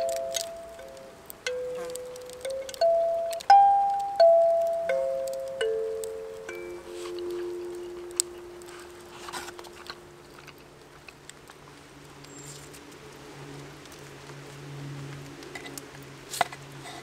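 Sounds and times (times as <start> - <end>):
kalimba note ringing: 0.0 - 9.6
small sharp clicks and rustles: 0.0 - 17.0.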